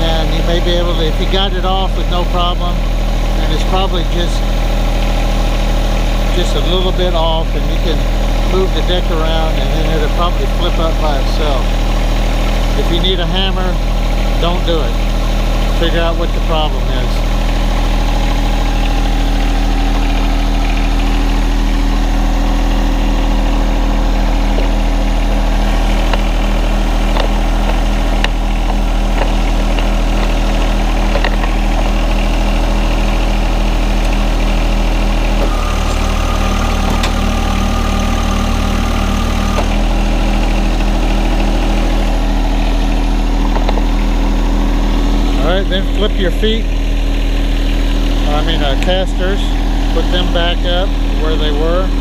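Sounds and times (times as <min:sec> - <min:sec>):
tractor diesel engine idling: 0:00.0 - 0:52.0.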